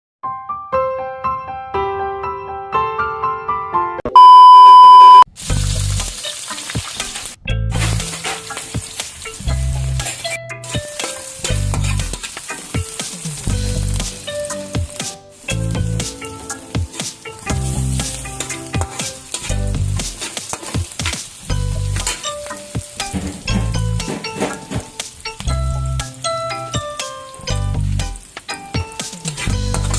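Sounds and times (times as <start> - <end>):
loud steady beep: 4.2 - 5.3
food sizzling in a pan: 5.3 - 29.9
background music with bass: 5.4 - 6.2, 7.4 - 20.2, 21.5 - 29.9
stirring in a pan: 5.4 - 29.9.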